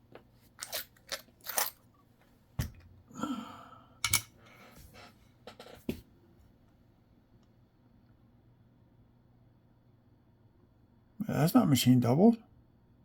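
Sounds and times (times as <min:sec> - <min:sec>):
coins clicking: 0:00.6 - 0:01.8.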